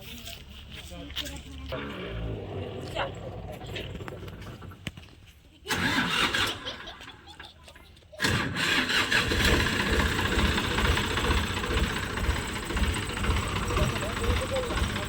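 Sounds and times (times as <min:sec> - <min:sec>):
tractor diesel engine chugging: 0:05.7 - 0:07.5, 0:08.2 - 0:15.0.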